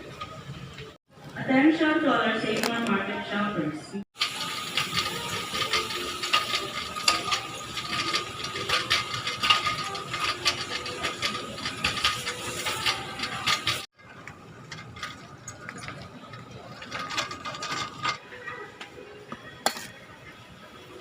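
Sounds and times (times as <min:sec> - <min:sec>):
rapid mechanical clicking and rattling: 0:04.2 - 0:18.2.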